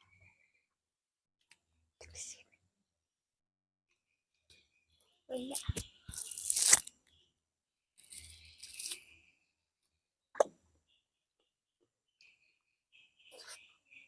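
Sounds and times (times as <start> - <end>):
fruit skin tearing: 5.5 - 6.9, 8.0 - 9.0.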